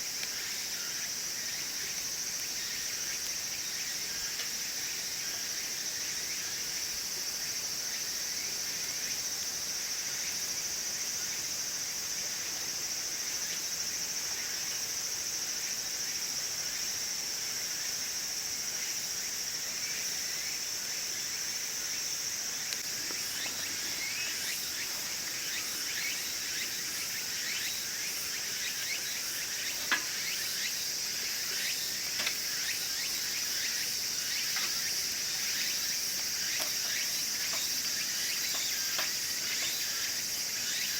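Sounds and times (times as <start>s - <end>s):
wood fire crackling: 0.0s - 5.6s, 22.7s - 40.6s
insects chirring: 0.0s - 40.9s.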